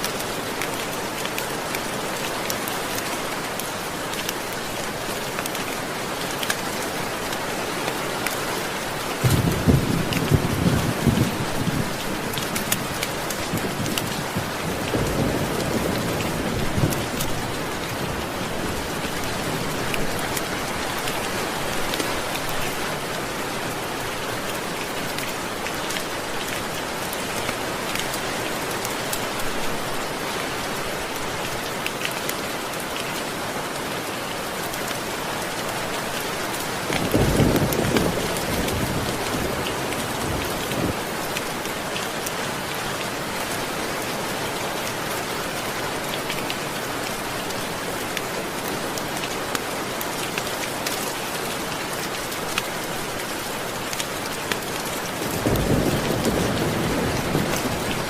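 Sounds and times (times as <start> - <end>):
heavy rain: 0.0 - 58.0
thunder rumbling: 55.2 - 58.0.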